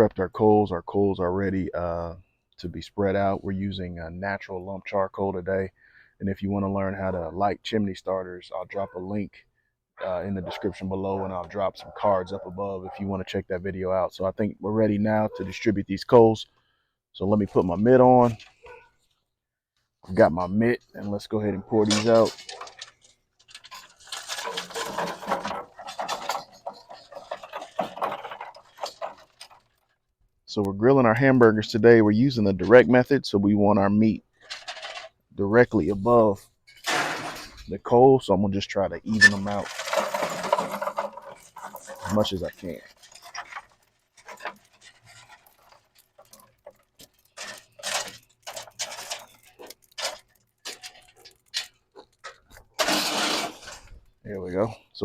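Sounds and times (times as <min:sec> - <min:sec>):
charcoal clattering onto grate: 0:21.8 - 0:29.7, 0:36.7 - 0:37.6, 0:39.2 - 0:53.9.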